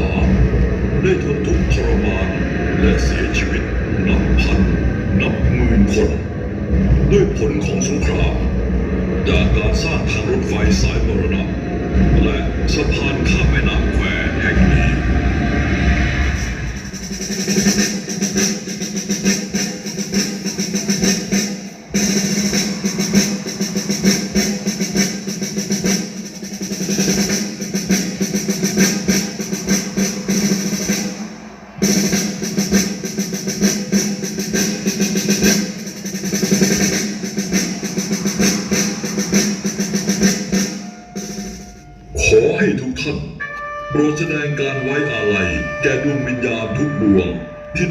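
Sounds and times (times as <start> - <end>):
drum-led music: 0.0 - 47.9
snare drum rolls: 9.2 - 15.2, 16.3 - 42.4.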